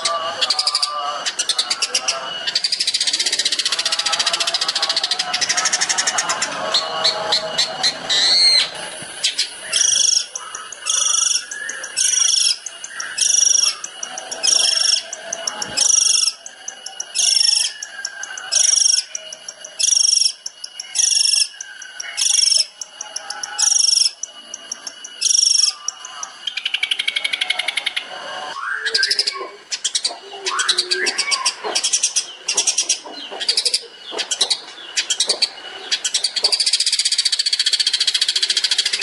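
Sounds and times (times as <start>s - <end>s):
bird rattling trill: 0.0s - 28.0s.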